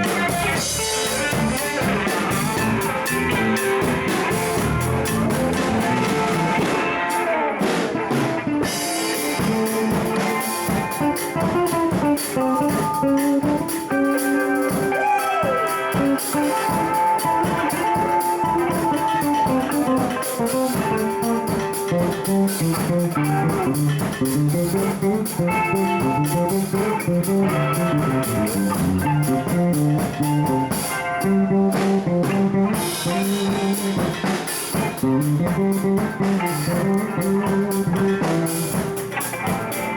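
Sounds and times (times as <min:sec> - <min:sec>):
bass guitar: 0:00.0 - 0:39.9
drum kit: 0:00.0 - 0:39.9
electric guitar runs: 0:00.0 - 0:39.9.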